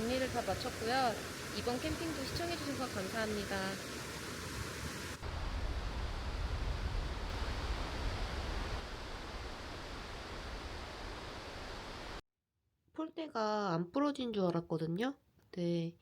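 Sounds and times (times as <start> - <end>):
rain: 0.0 - 12.2
wind buffeting microphone: 5.2 - 12.0.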